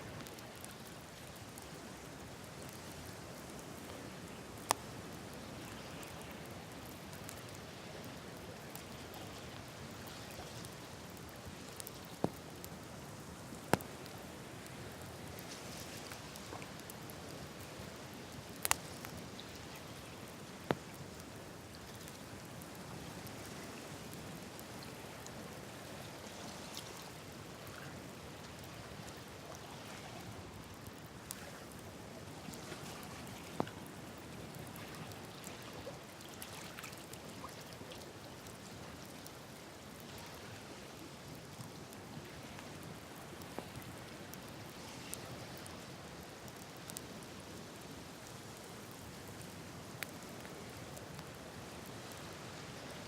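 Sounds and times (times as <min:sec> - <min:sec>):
campfire crackling: 0:00.0 - 0:53.0
burning wood popping: 0:10.6 - 0:23.4.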